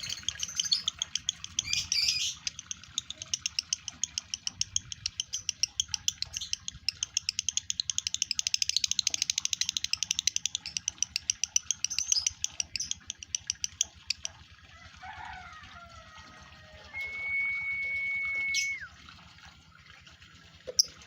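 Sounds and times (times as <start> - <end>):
lovebird chattering song: 0.0 - 14.3.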